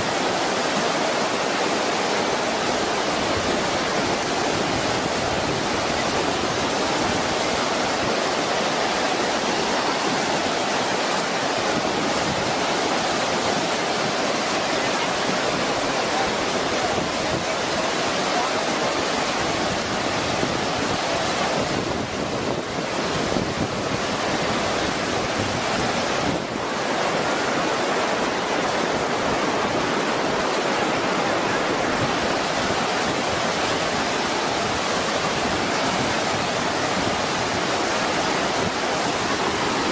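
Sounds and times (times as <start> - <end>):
floodwater rushing: 0.0 - 39.9.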